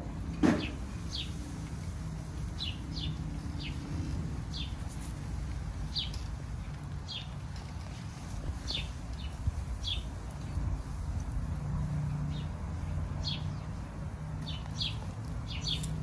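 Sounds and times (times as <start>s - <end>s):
small bird chirping: 14.4s - 16.0s.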